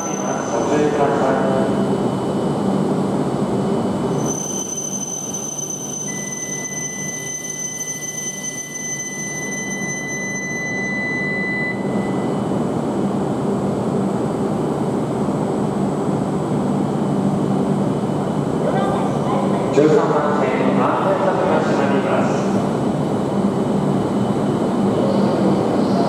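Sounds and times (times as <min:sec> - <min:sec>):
whistle-like tone: 0:04.2 - 0:12.3.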